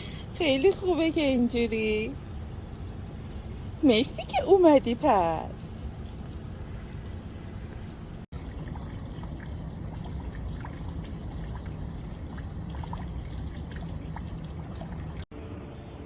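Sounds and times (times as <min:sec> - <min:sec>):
water trickling: 0:00.0 - 0:15.3
drip-like ticks: 0:02.0 - 0:04.3, 0:05.8 - 0:15.3.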